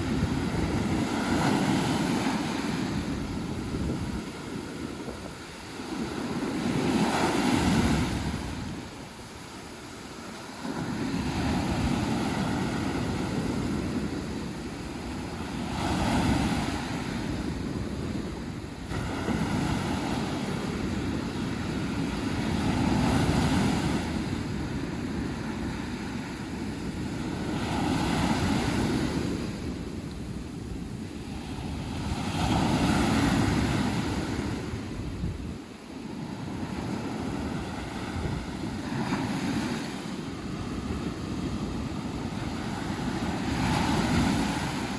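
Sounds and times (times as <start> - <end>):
wind buffeting microphone: 0.0 - 10.0, 10.7 - 44.9
sea waves breaking on beach: 0.0 - 44.9.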